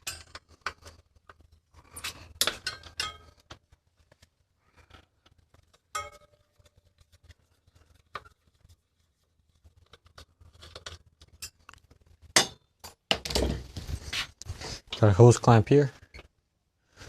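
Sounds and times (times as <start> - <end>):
metal bike parts and tools clinking: 0.0 - 3.7, 4.9 - 6.9, 10.1 - 13.6.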